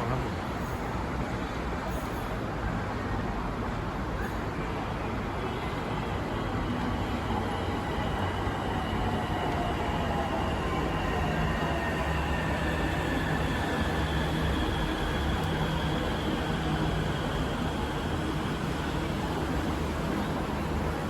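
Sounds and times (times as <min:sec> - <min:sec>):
electric metro train rumble: 0:00.0 - 0:21.0.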